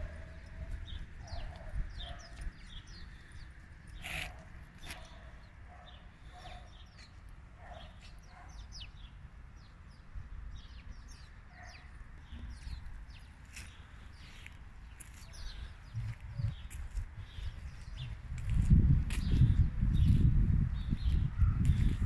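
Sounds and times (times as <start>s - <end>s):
small birds chirping: 0.0s - 22.0s
steady low rumble: 14.8s - 22.0s.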